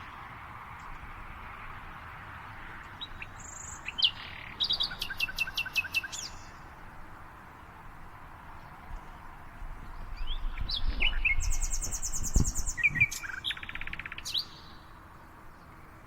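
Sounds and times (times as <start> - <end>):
birds chirping: 8.6 - 16.0.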